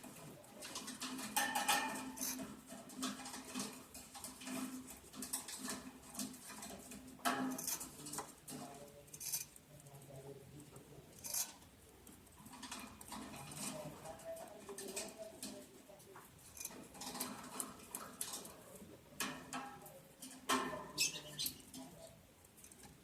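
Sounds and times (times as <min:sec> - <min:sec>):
birds scratching and tapping: 0:00.0 - 0:23.0.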